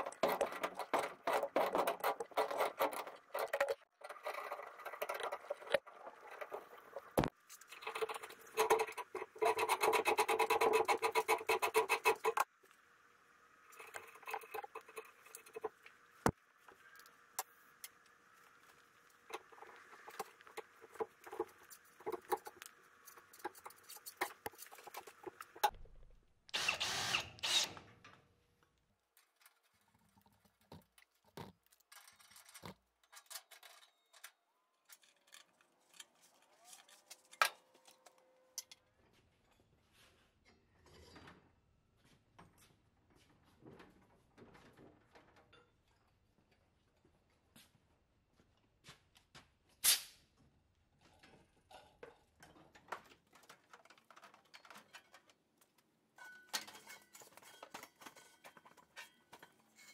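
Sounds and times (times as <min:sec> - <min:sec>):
scraping of pipe threads: 0:00.0 - 0:12.5, 0:13.7 - 0:16.3, 0:18.6 - 0:25.7, 0:56.2 - 0:59.9
loud rasping: 0:07.9 - 0:12.4.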